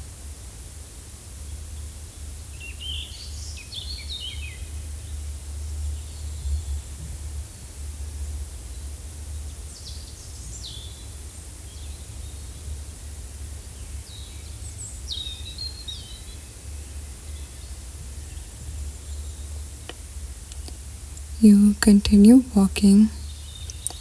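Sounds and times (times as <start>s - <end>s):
small birds chirping: 20.4s - 24.0s.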